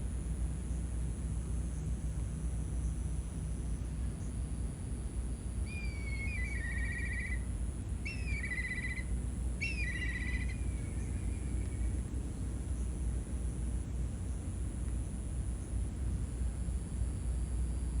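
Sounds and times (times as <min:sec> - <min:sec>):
low outdoor rumble: 0:00.0 - 0:18.0
bird call with trill: 0:05.7 - 0:07.4, 0:08.1 - 0:11.5.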